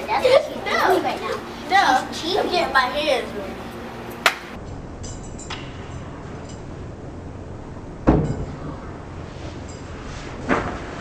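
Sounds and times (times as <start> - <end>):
hand slapping skin: 4.2 - 4.5.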